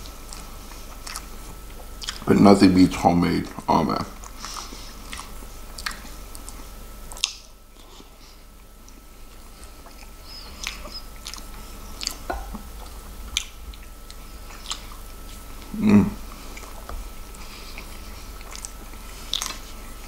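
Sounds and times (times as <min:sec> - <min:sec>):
man chewing food: 0:00.0 - 0:20.0
mouth clicks and wet smacks: 0:01.0 - 0:02.3, 0:03.5 - 0:07.5, 0:09.6 - 0:15.7.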